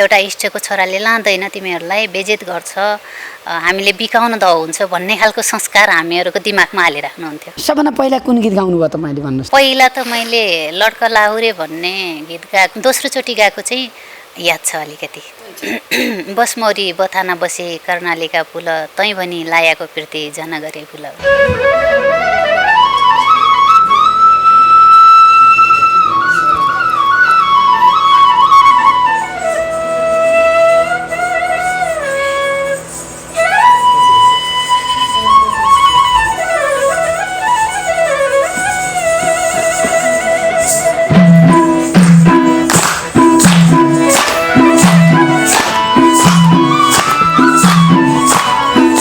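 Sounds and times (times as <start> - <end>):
percussion beat: 21.2 - 24.0, 26.2 - 49.0
flute melody: 21.2 - 49.0.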